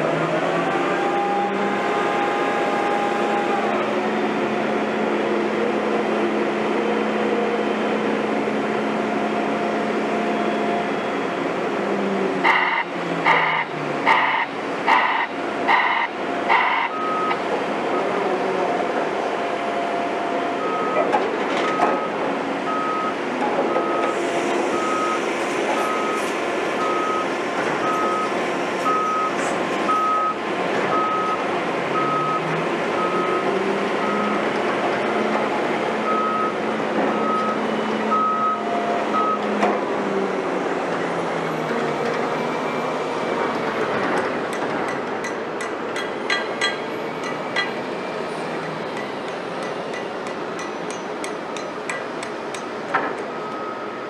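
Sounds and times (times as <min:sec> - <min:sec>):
diesel machinery noise: 0:00.0 - 0:54.0
reversing alarm beeping: 0:12.4 - 0:17.4, 0:20.6 - 0:31.4, 0:32.0 - 0:34.4, 0:36.0 - 0:39.5, 0:53.4 - 0:54.0.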